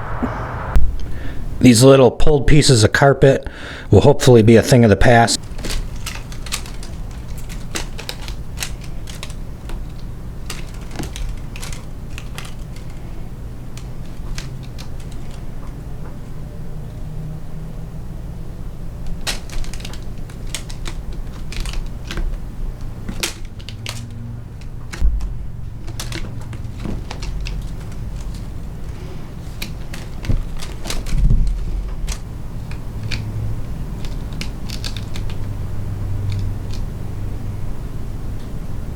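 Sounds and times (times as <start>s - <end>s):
low hum: 0.0s - 1.6s, 24.0s - 29.6s
scratches and clicks: 5.4s - 15.8s, 19.0s - 36.9s.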